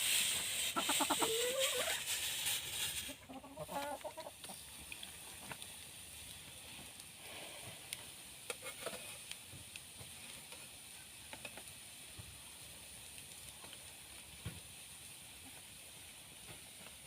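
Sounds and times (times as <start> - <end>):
faint sizzling hiss: 0.0 - 17.0
fire pops and clicks: 4.4 - 7.2, 7.8 - 12.3.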